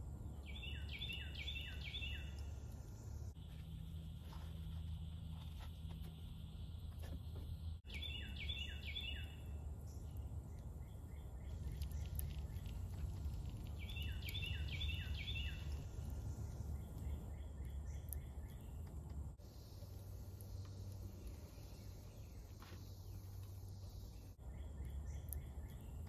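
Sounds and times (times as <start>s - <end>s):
songbird whistling: 0.4s - 2.5s, 7.9s - 9.5s, 13.8s - 15.8s
steady low rumble: 9.2s - 25.9s.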